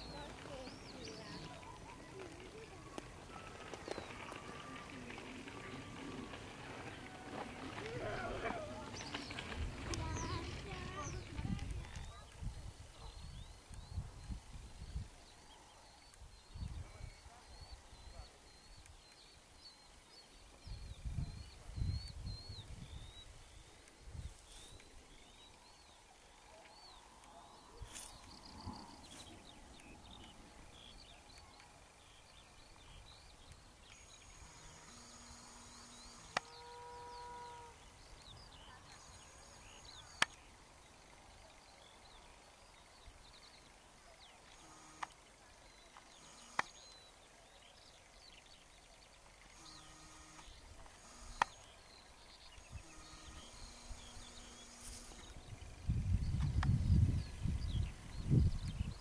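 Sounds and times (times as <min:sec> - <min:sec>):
faint birdsong: 0:00.0 - 0:59.0
open-air background noise: 0:00.0 - 0:59.0
sharp clicks: 0:46.0 - 0:47.0, 0:49.6 - 0:51.8.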